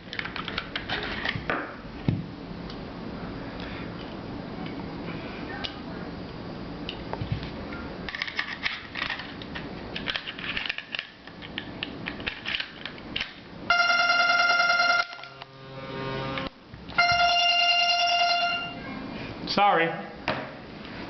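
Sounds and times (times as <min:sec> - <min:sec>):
loud steady pitched tone: 0:13.7 - 0:19.2.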